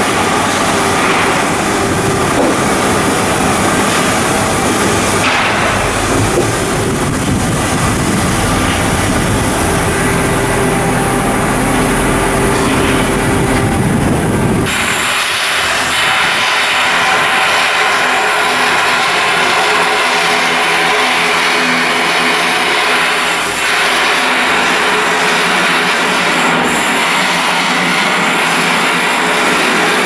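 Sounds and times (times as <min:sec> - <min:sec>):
loud machinery noise: 0:00.0 - 0:30.0.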